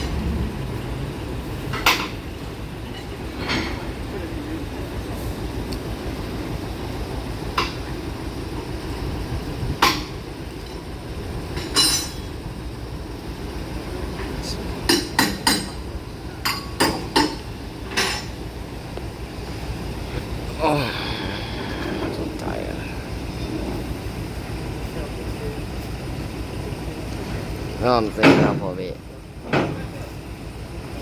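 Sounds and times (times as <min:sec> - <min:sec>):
steady low rumble: 0:00.0 - 0:28.0
sharp metallic clanks: 0:01.7 - 0:04.2, 0:11.5 - 0:12.4, 0:14.2 - 0:18.4.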